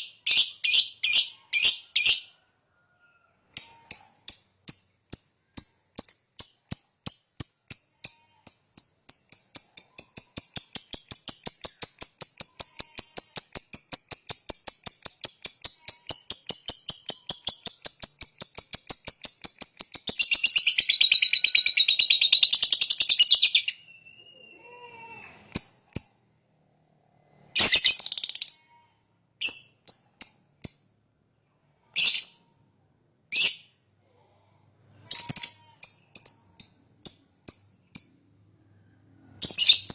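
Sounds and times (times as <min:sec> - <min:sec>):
bird chirping and chattering: 0:03.5 - 0:24.5, 0:25.5 - 0:26.2, 0:27.6 - 0:28.8, 0:29.4 - 0:30.9, 0:32.0 - 0:32.6, 0:35.0 - 0:38.2, 0:39.4 - 0:39.9.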